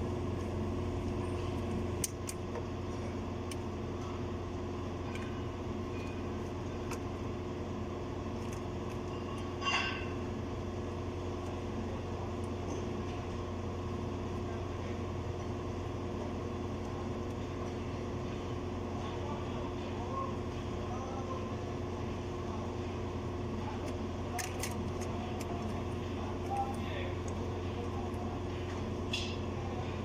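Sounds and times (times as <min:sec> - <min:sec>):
machine humming: 0:00.0 - 0:30.0.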